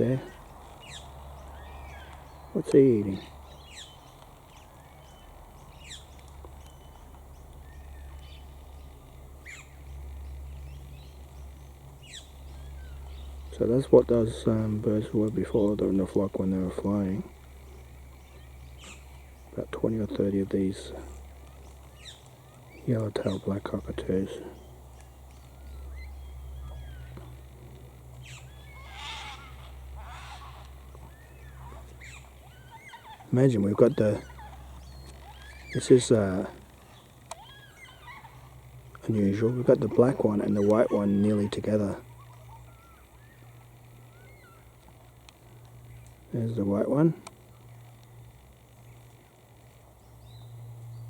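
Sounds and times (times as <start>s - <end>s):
birds calling: 0.0s - 51.0s
steady low hum: 0.0s - 51.0s
cockatoo harsh wailing cry: 28.2s - 36.0s, 37.3s - 38.8s, 39.5s - 44.7s.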